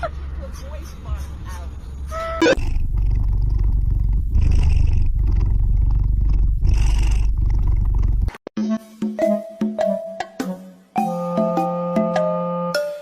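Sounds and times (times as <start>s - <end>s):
cat purring: 2.5s - 8.4s.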